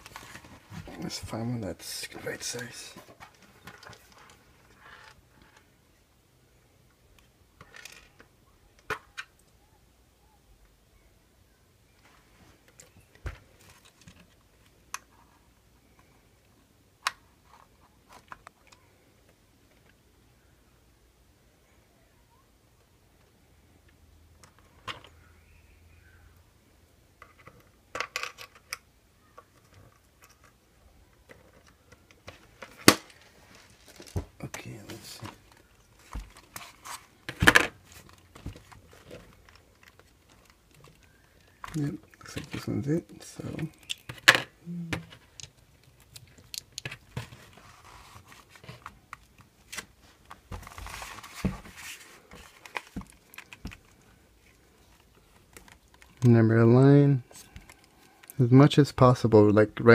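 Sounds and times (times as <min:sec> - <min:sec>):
rustle of handling: 0:45.9 - 0:56.4.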